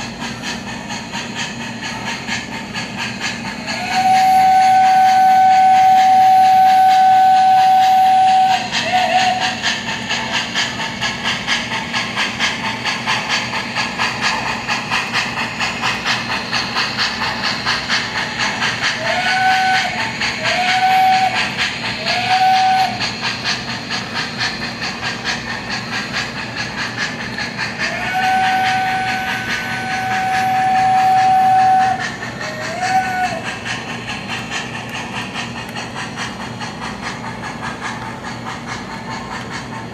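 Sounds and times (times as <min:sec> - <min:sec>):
steam chuffing: 0:00.0 - 0:39.9
train whistle blasts: 0:03.7 - 0:09.6, 0:18.9 - 0:23.1, 0:27.9 - 0:33.4.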